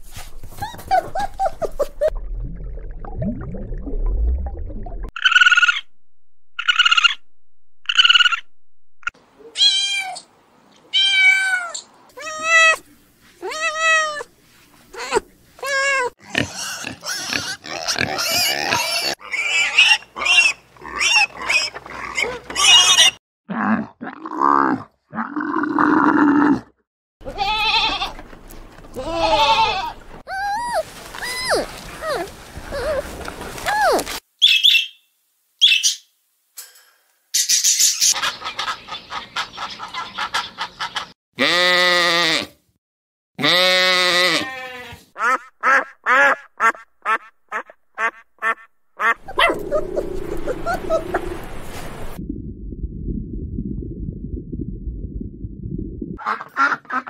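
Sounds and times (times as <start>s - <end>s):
lower animal calls: 49.2s - 51.8s
low rumble: 49.2s - 56.2s.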